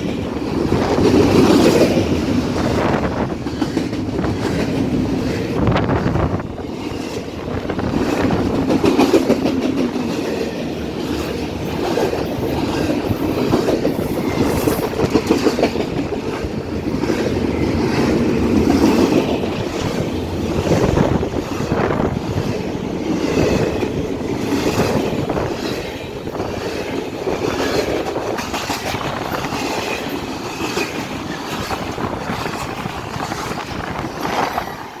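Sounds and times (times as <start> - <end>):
freight train rumbling past: 0.0 - 35.0
wheels clacking on rail joints: 0.0 - 35.0.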